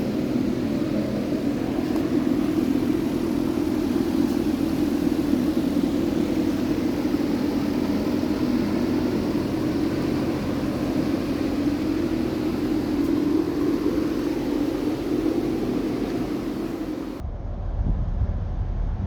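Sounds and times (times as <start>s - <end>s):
air-moving machine drone with hiss: 0.0s - 19.0s.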